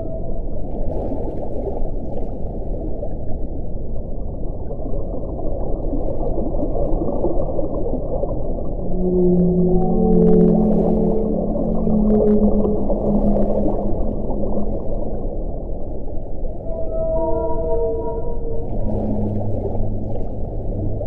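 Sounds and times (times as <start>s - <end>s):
hollow moaning wind tones: 0.0s - 2.0s, 2.6s - 21.0s
wind rumbling: 6.4s - 21.0s.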